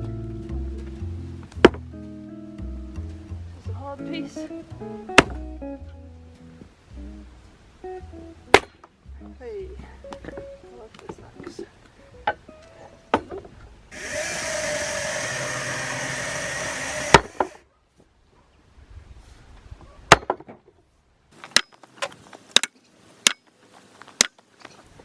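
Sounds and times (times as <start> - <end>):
axe chopping firewood: 5.2 - 5.4, 8.5 - 8.8, 17.0 - 17.6, 20.1 - 20.6, 21.4 - 23.5, 24.2 - 24.4.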